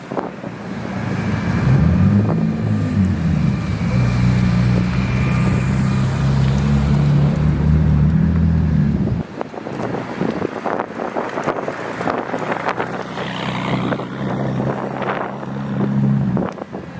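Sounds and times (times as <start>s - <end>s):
car engine running at low revs: 0.1s - 10.8s.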